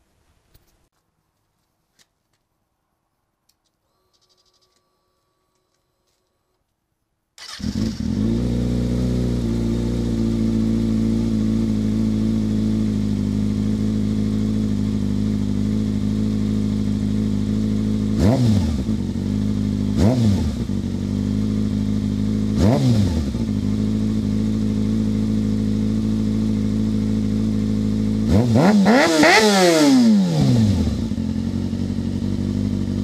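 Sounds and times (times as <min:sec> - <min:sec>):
motorcycle engine starting and idling: 0:07.4 - 0:33.0
motorcycle throttle blips: 0:07.4 - 0:33.0.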